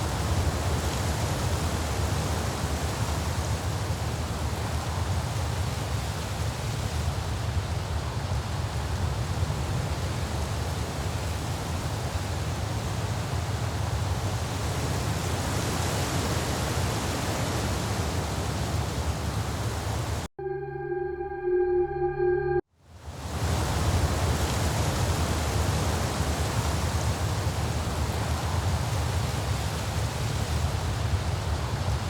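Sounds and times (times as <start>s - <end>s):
music with sustained tones: 20.4s - 22.6s.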